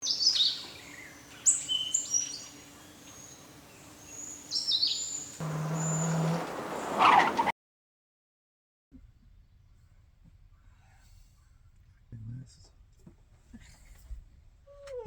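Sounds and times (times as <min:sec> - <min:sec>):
songbirds chirping: 0:00.0 - 0:07.5
low hum with hiss: 0:09.0 - 0:15.0.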